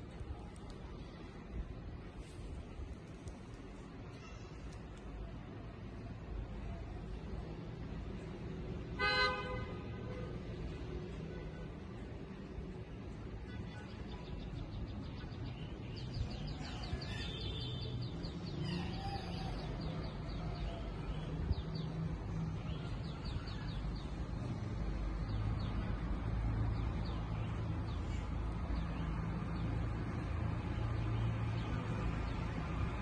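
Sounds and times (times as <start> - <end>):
small birds chirping: 13.0 - 32.5.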